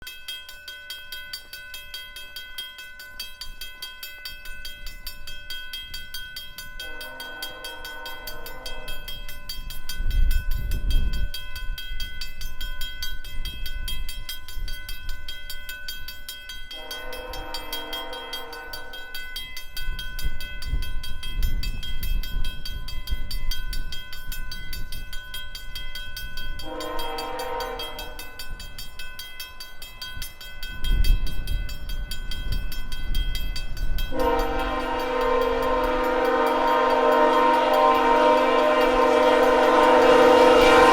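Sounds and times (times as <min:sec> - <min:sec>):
low rumble of approaching train: 0:00.0 - 0:40.9
train air horn blasts: 0:06.8 - 0:09.2, 0:16.8 - 0:19.1, 0:26.6 - 0:28.3, 0:34.1 - 0:40.9.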